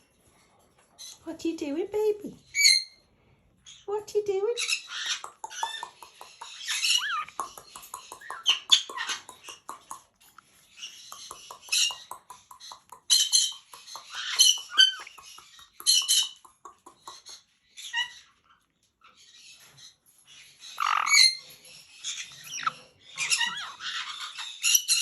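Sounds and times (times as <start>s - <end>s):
parrot chirping and chattering: 0.1s - 25.0s
small rapid clicks: 5.0s - 17.5s.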